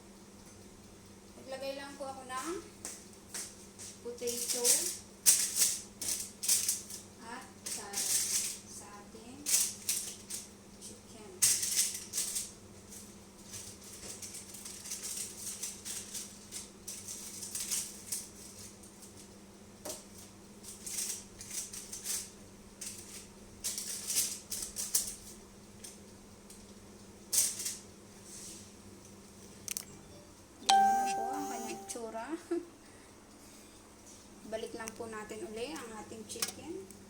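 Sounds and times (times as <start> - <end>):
food rustling and scraping in pan: 11.5 - 19.3, 20.0 - 25.4, 27.4 - 28.8.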